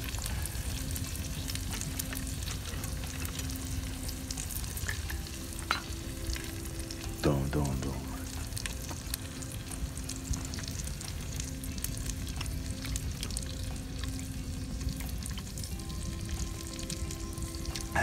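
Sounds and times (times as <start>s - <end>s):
food frying in a pan: 0.0s - 18.0s.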